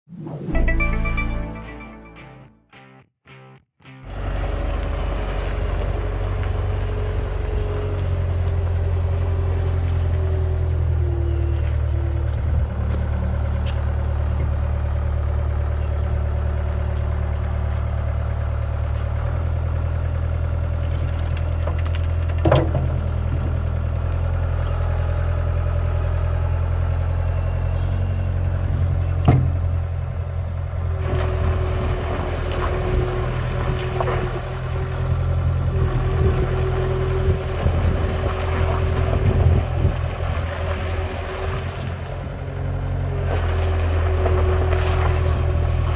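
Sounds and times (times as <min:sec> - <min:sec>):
diesel engine running: 0:04.1 - 0:45.9
clatter: 0:18.8 - 0:24.2.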